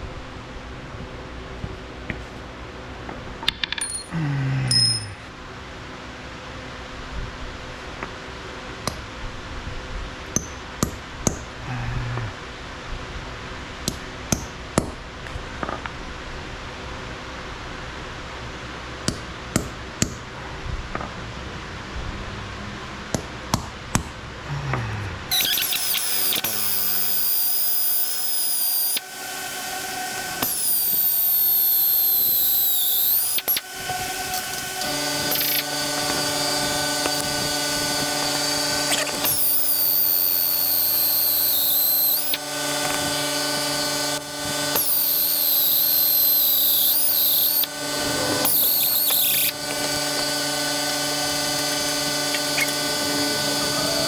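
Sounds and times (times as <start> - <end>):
drill bit squealing in steel: 3.6 - 4.1, 4.7 - 5.3, 25.3 - 54.0.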